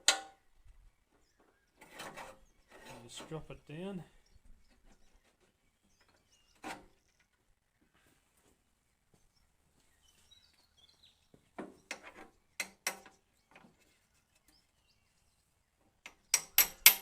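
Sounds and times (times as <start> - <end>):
metal parts knocking and clinking: 16.1 - 17.0.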